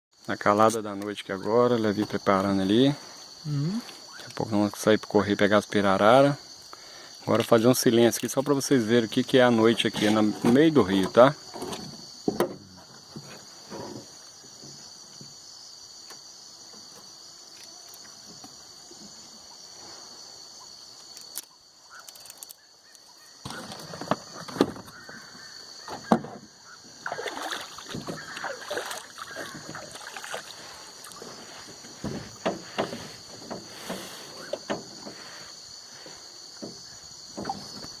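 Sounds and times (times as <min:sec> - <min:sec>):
night insects shrilling: 0:00.2 - 0:38.0
knocks: 0:32.0 - 0:35.2.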